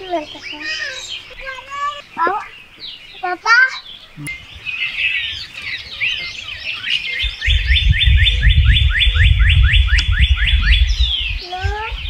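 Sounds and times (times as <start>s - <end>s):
bird rapid rising chirps: 0.0s - 12.0s
birds chirping: 0.0s - 12.0s
low rumble: 7.5s - 11.4s.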